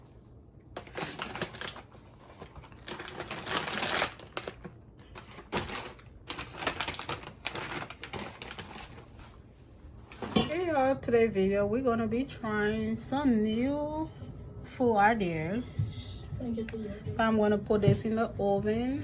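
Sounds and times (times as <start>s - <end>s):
rustling of handled things: 0.8s - 10.7s.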